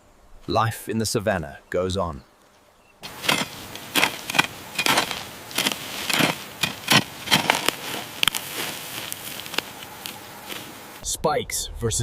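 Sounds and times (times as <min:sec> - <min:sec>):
light rustle: 0:02.4 - 0:11.0
dry crackling and crunching: 0:03.0 - 0:11.0.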